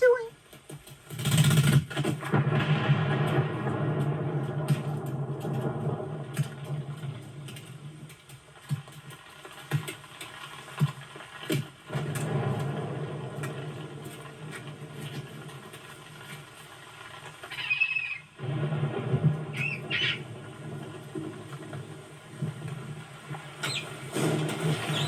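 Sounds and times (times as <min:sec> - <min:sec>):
steady low rumble: 0:02.3 - 0:08.3
shrill bird screech: 0:17.5 - 0:18.3, 0:19.6 - 0:20.2.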